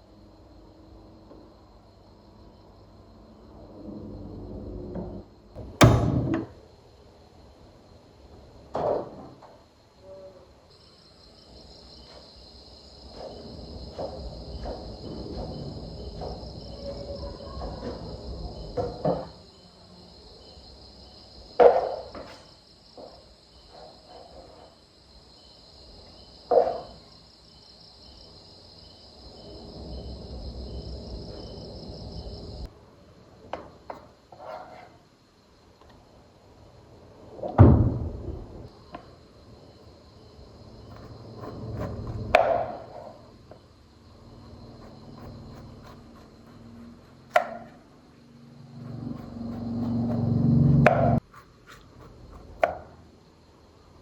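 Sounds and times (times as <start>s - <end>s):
insects chirring: 0.0s - 54.0s
sharp knocks: 5.6s - 6.6s.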